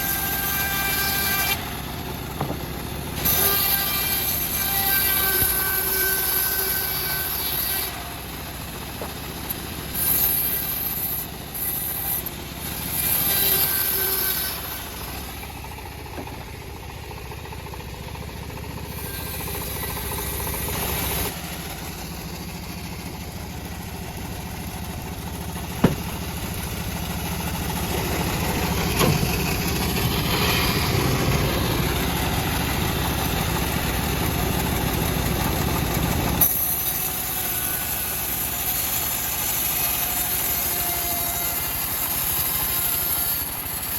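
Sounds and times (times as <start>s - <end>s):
sawmill engine running: 0.0s - 43.9s
sharp knocks: 2.1s - 3.1s, 16.1s - 16.6s, 25.7s - 26.5s.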